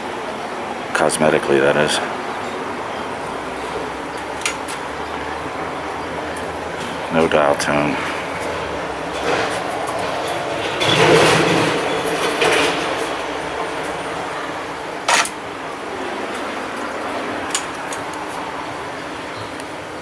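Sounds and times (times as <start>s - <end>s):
city street traffic: 0.0s - 20.0s
sharp clack: 15.1s - 15.4s.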